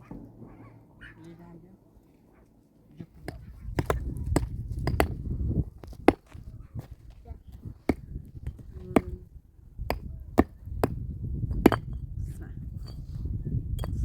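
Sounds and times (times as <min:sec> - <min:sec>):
wood being struck: 0:03.2 - 0:06.5, 0:07.8 - 0:09.2, 0:09.8 - 0:12.0.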